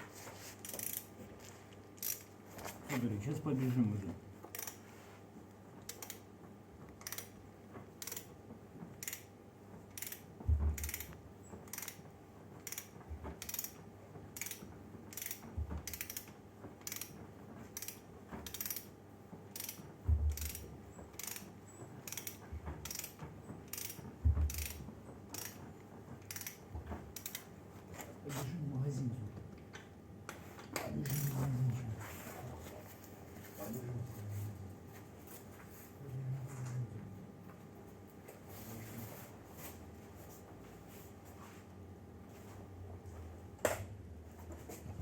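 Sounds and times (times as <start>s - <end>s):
mechanical clicking: 6.9s - 7.4s, 8.0s - 8.3s, 9.0s - 9.3s, 12.6s - 17.2s, 19.5s - 25.6s, 26.2s - 27.5s.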